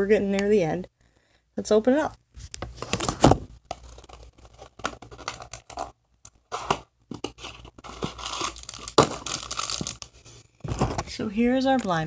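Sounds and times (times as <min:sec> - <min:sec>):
packaging tearing and crinkling: 0:02.7 - 0:11.0.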